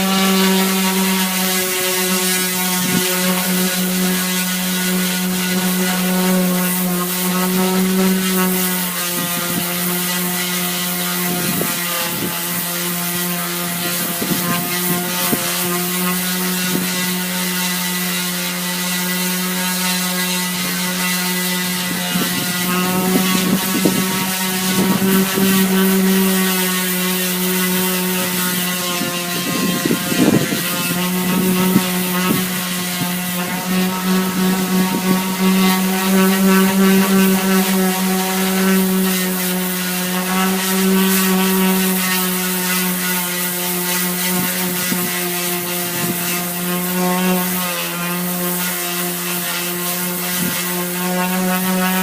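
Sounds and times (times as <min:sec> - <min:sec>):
orbital sander motor whine: 0:00.0 - 0:52.0
sander scraping fiberglass: 0:00.0 - 0:52.0.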